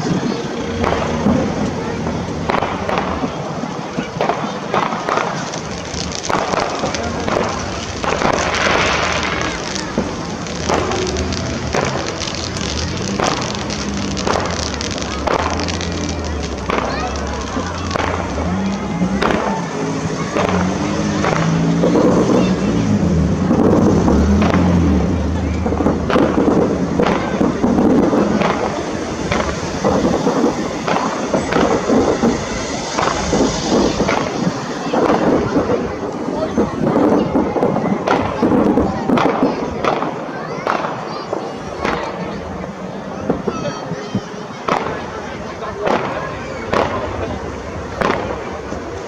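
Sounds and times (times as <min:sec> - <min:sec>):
fireworks crackle: 0:00.0 - 0:49.0
fireworks shells bursting: 0:00.0 - 0:49.0.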